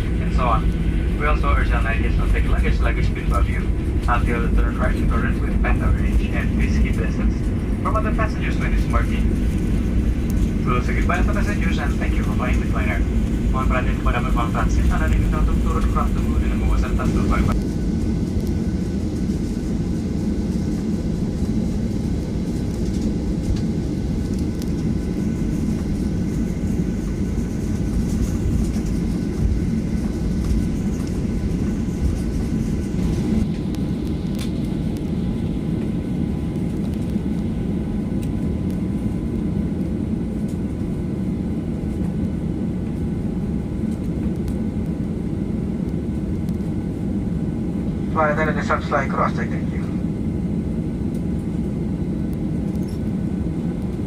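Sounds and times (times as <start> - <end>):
airliner cabin rumble: 0.0 - 54.0.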